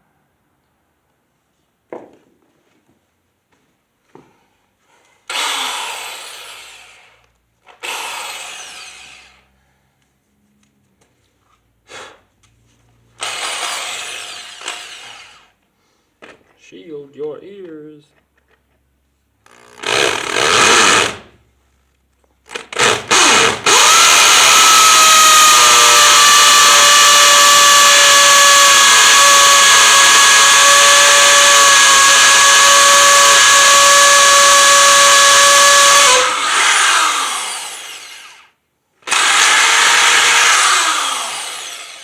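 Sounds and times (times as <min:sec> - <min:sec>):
hammer drill boring into concrete: 0:05.3 - 0:09.5, 0:13.2 - 0:15.6, 0:19.4 - 0:21.3, 0:22.5 - 0:42.0.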